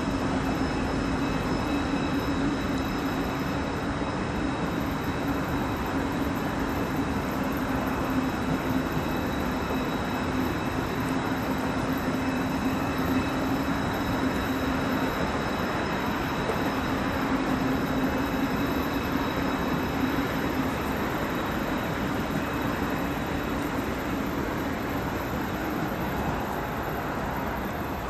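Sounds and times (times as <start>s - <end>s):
faint high whine: 0.0s - 28.0s
train wheels rumbling on rails: 0.0s - 28.0s.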